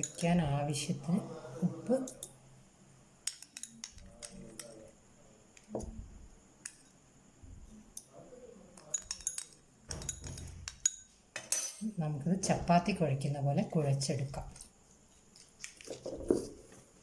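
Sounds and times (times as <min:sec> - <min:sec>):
utensil clinking against bowl: 0:08.8 - 0:11.9.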